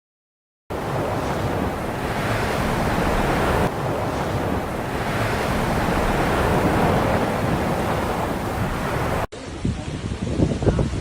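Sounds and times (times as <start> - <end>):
rushing water roar: 0.7 - 9.3
wind on microphone: 0.7 - 11.0.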